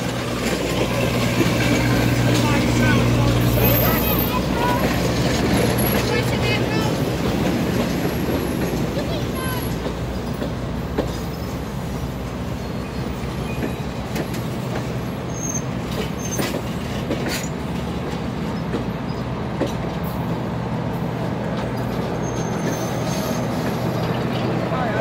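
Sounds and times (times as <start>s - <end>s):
rumble of wheels on rail: 0.0s - 25.0s
high wheel squeals: 0.9s - 6.9s, 15.2s - 16.6s, 21.8s - 24.1s.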